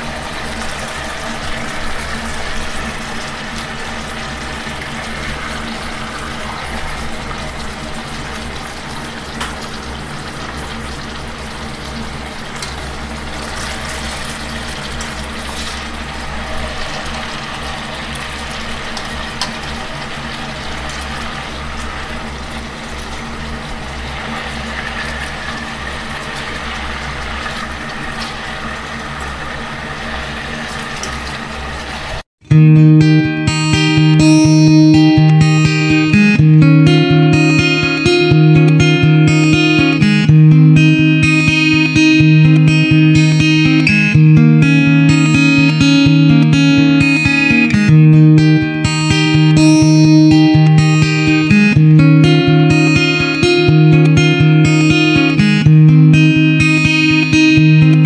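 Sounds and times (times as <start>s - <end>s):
sauce bubbling in a pan: 0.0s - 32.2s.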